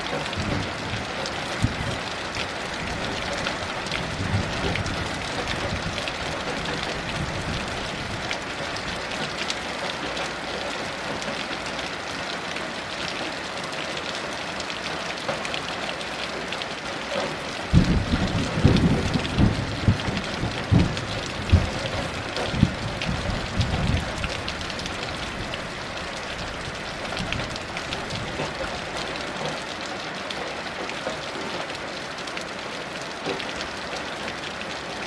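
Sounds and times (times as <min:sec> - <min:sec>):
heavy rain: 0:00.0 - 0:35.0
low rolling thunder: 0:04.0 - 0:06.1, 0:17.7 - 0:24.7.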